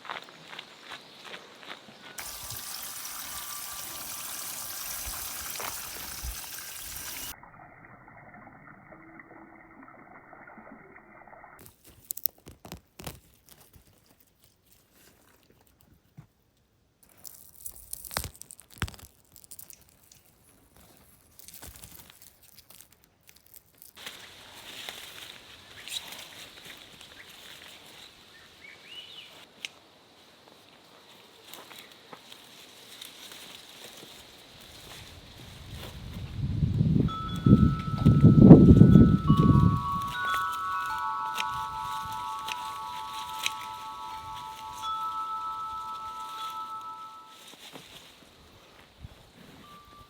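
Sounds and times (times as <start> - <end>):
water pouring and trickling: 2.2 - 11.6, 37.1 - 47.2.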